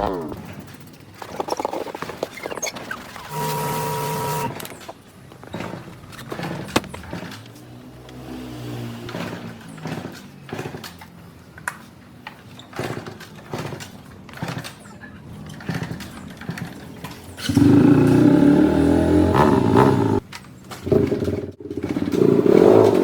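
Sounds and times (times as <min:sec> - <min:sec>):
motorcycle engine running: 0:17.4 - 0:20.2.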